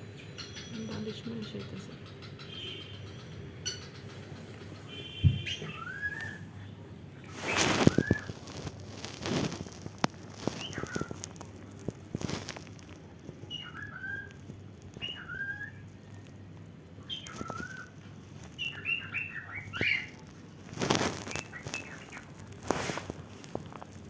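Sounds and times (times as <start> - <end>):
cockatiel chirping: 0.4 - 6.4, 10.4 - 11.2, 13.4 - 14.4, 15.0 - 15.8, 17.0 - 20.2, 21.0 - 22.3
rustling or hissing bursts: 7.3 - 11.1, 22.6 - 23.6.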